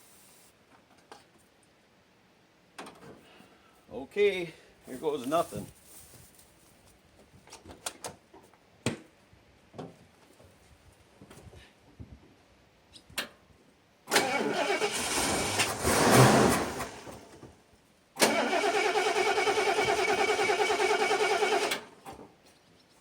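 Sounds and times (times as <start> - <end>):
engine cranking by starter: 14.1 - 17.5, 18.2 - 22.0.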